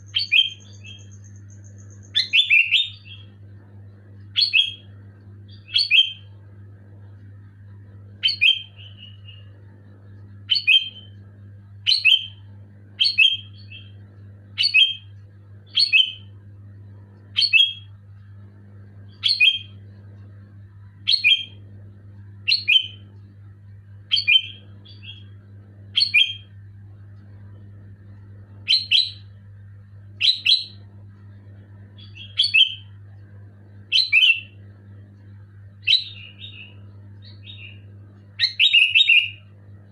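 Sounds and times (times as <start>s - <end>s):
bird sharp calls: 0.0s - 3.3s, 38.4s - 39.4s
steady low hum: 0.0s - 39.9s.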